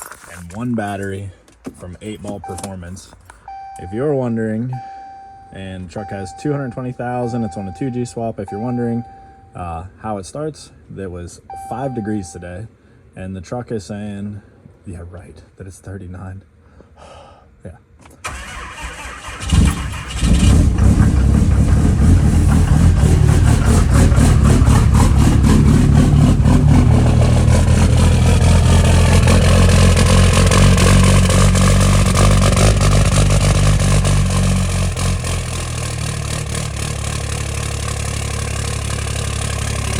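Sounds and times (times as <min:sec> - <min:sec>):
diesel engine starting and idling: 0:02.0 - 0:09.6, 0:18.2 - 0:39.9
engine cranking: 0:18.2 - 0:39.9.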